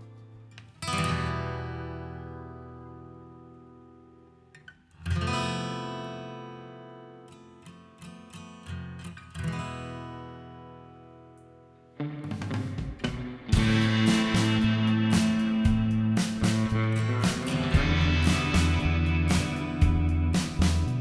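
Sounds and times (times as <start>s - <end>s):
acoustic guitar music: 0.0s - 21.0s.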